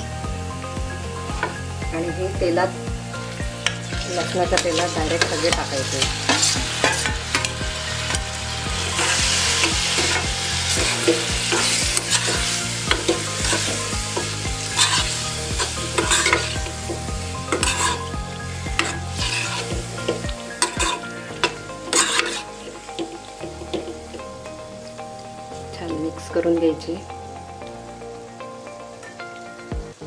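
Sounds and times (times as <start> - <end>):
fish sizzling in hot oil: 0.3 - 30.0
steel spoon scraping pan: 3.6 - 18.1, 18.8 - 23.9.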